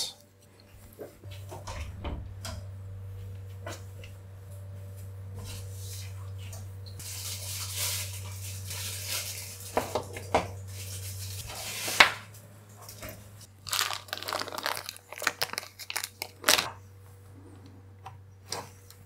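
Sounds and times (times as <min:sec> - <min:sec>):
plastic packaging crinkling: 0:13.5 - 0:16.7.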